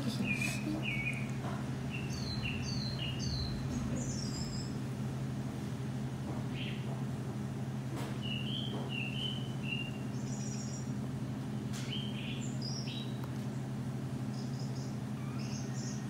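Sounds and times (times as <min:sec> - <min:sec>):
small birds chirping: 0:00.0 - 0:04.9, 0:06.5 - 0:06.9, 0:08.2 - 0:11.0, 0:11.8 - 0:16.0
steady low hum: 0:00.0 - 0:16.0.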